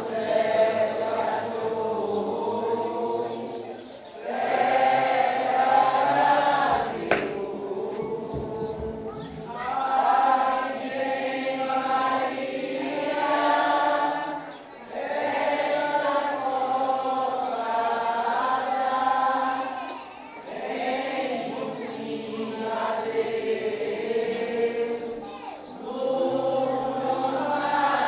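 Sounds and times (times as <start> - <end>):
group singing a hymn: 0.0 - 28.0.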